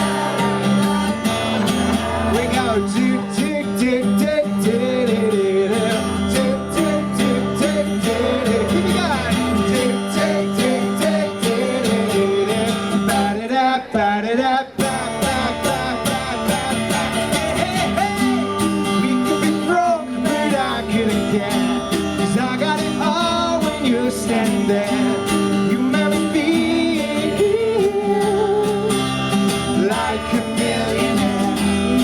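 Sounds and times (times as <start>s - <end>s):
strummed acoustic guitar: 0.0s - 32.0s
voices singing la la: 0.0s - 32.0s.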